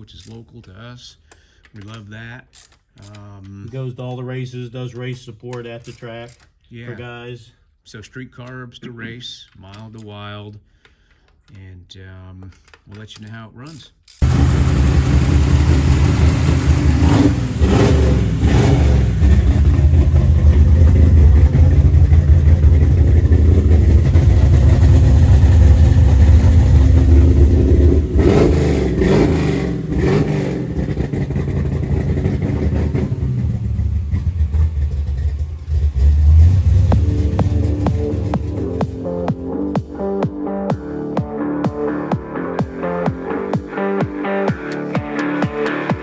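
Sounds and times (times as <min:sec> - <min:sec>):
engine revving: 0:14.2 - 0:46.0.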